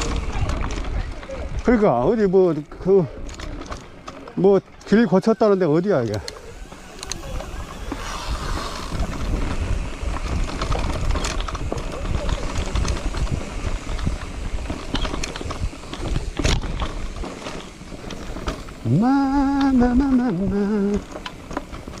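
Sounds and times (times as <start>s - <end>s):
wind buffeting microphone: 6.2s - 22.0s
man humming: 18.8s - 21.1s.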